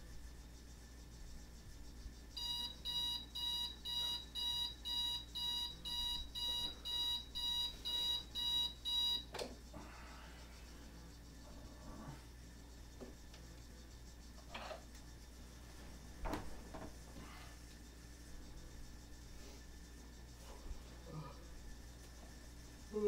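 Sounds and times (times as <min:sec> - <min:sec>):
alarm clock beeping: 0:02.4 - 0:09.3.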